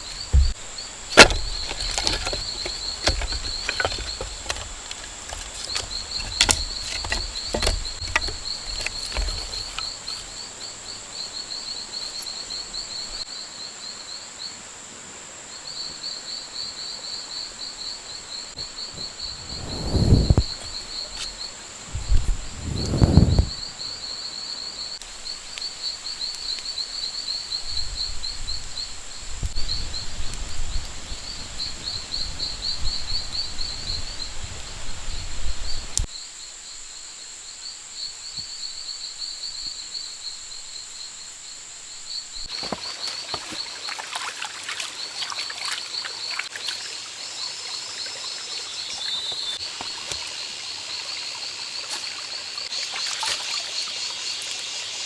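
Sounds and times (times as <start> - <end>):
light rustling and clicking: 0.0 - 10.9
insects trilling: 0.0 - 55.0.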